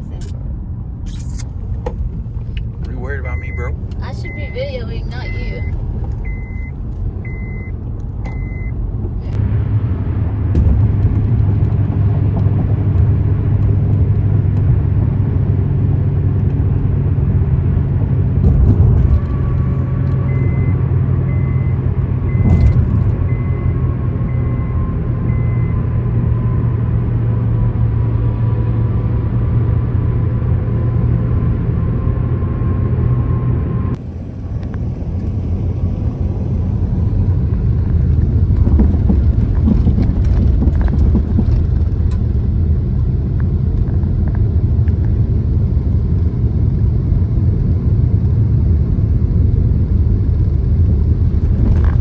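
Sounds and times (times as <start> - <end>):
car road noise hum with whine: 0.0 - 52.0
rough road rumble: 0.0 - 52.0
knocks and rattles: 18.4 - 19.9, 38.1 - 42.4.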